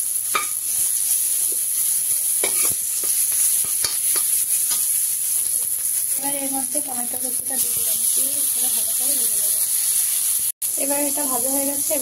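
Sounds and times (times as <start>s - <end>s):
food sizzling in hot oil: 0.0s - 12.0s
metal ladle scraping a pan: 2.4s - 4.9s.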